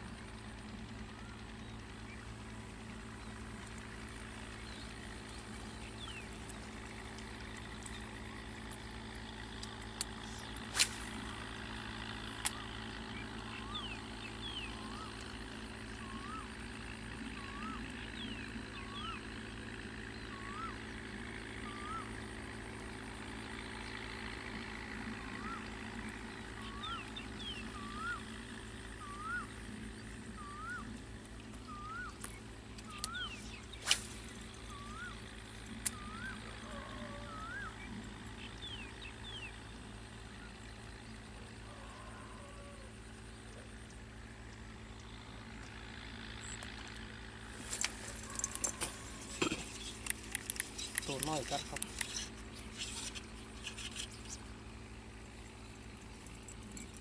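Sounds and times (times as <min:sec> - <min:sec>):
steady low hum: 0:00.0 - 0:57.0
faint high chirps: 0:35.9 - 0:37.8
sharp clicks: 0:49.7 - 0:54.4.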